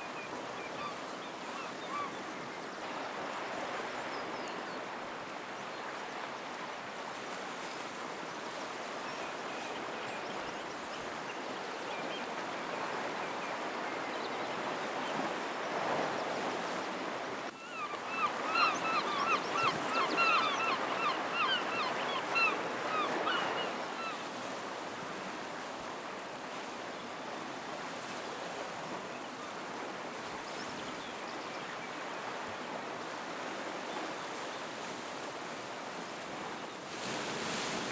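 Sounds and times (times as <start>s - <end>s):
bird calling rapidly: 17.7s - 23.7s.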